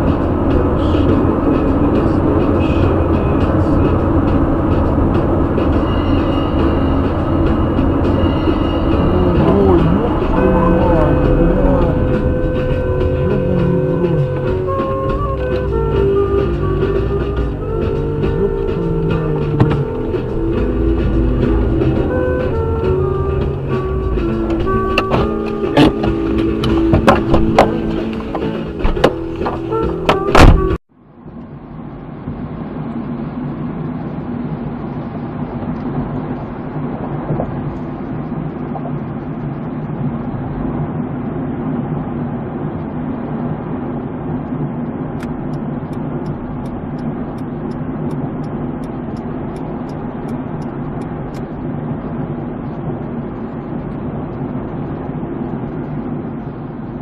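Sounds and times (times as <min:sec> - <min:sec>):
loud music: 0:00.0 - 0:30.8
car engine and road noise: 0:00.0 - 0:57.0.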